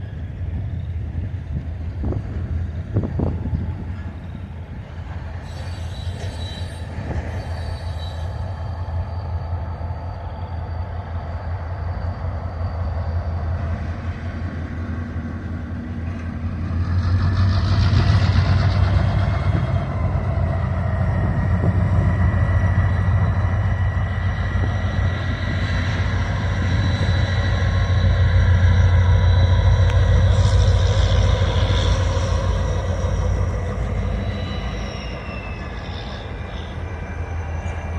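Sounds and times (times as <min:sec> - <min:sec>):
train rumbling on rails: 0:00.0 - 0:37.9
wheels squealing: 0:05.2 - 0:14.2, 0:16.8 - 0:37.9.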